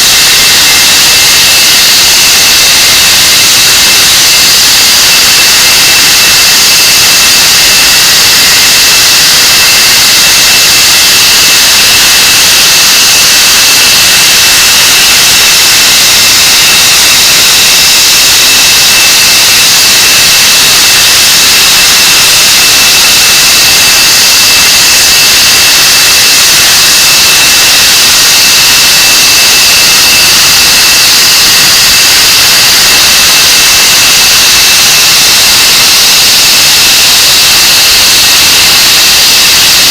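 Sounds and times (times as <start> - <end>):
jet engines roaring with whine: 3.6 - 19.4, 21.1 - 33.6, 34.2 - 37.5.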